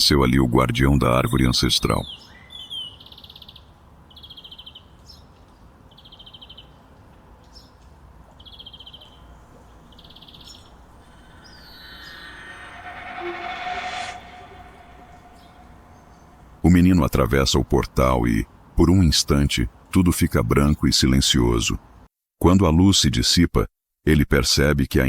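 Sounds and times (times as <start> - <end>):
faint background ambience: 3.7 - 17.4
buzzy bird chirps: 8.4 - 16.5
rushing swell: 9.2 - 16.7.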